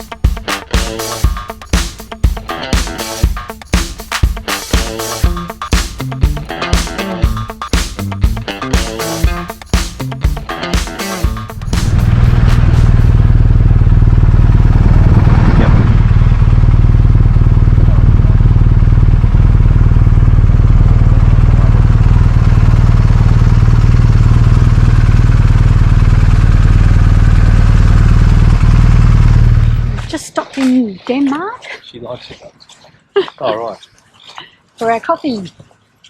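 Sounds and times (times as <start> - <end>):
motorcycle engine cruising: 5.0 - 30.2
wind and road noise: 11.6 - 30.1.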